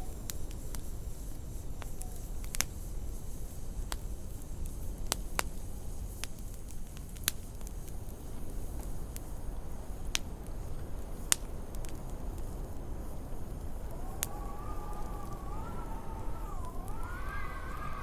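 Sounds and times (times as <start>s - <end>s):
wood fire crackling: 0.0s - 18.0s
low rumble of wind: 12.0s - 18.0s.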